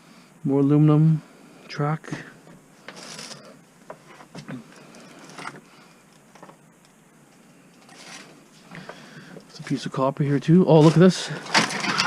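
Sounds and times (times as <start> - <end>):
scrap items rustling: 10.7 - 12.0.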